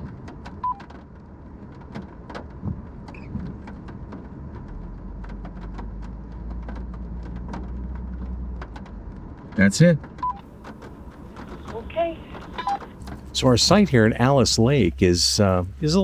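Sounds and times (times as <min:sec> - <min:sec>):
vehicle engine running low: 0:10.5 - 0:16.0.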